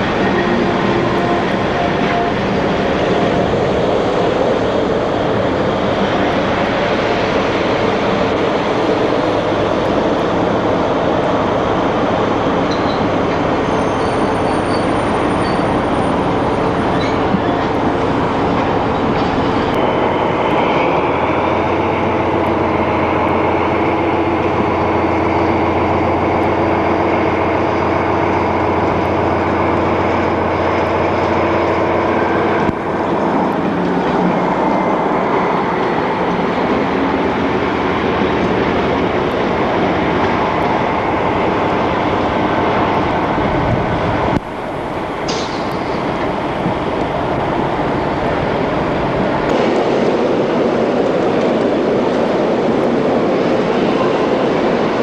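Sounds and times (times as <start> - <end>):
diesel locomotive running: 0.0 - 55.0
train coaches rolling on rails: 0.0 - 55.0
high squeal: 12.7 - 17.8.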